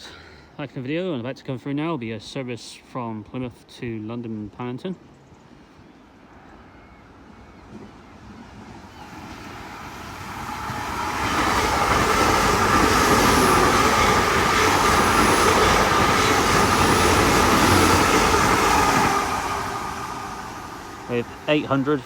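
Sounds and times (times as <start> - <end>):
diesel train passing: 6.2 - 22.0
train wheels rumbling on rails: 7.7 - 22.0.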